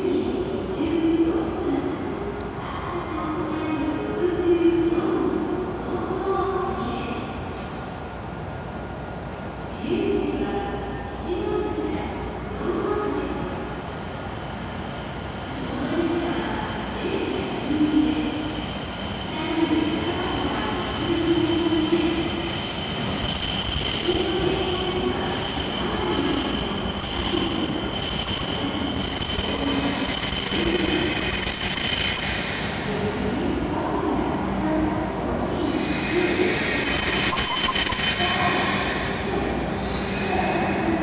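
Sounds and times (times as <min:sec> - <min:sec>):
train braking into station: 0:00.0 - 0:41.0
high-pitched whine: 0:11.6 - 0:34.6, 0:35.5 - 0:41.0.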